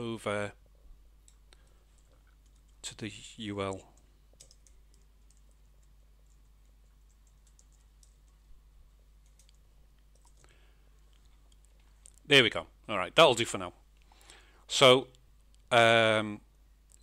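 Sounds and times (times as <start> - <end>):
low steady hum: 0.0 - 17.0
keyboard and mouse clicks: 4.3 - 8.4, 9.2 - 12.2.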